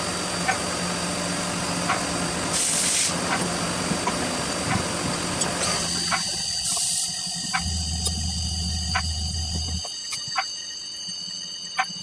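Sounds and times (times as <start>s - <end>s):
machine whine and hum: 0.0s - 12.0s
burst of hiss: 2.5s - 3.2s.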